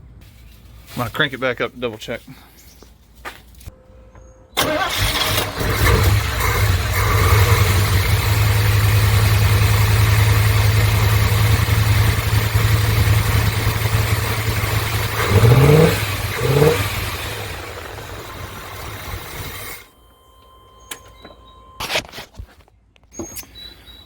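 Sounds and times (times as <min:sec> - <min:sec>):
rough idling engine: 0:04.6 - 0:19.9.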